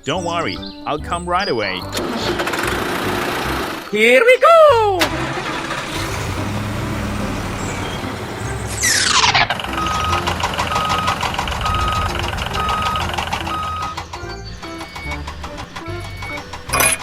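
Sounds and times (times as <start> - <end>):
vehicle engine rumble: 2.0 - 3.8, 4.8 - 17.0
reversing alarm beeps: 9.7 - 15.2, 16.0 - 16.8.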